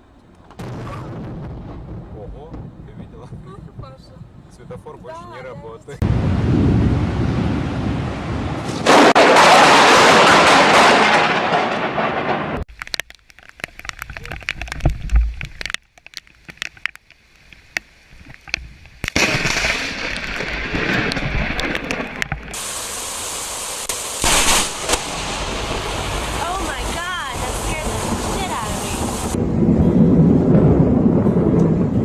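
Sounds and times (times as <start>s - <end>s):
thunder crash: 0.5s - 5.1s, 6.0s - 12.7s, 19.2s - 23.0s, 23.9s - 32.0s
lightning strike cracks and boom: 0.6s - 4.8s, 6.0s - 12.7s, 19.1s - 32.0s
steady hiss: 22.4s - 29.4s.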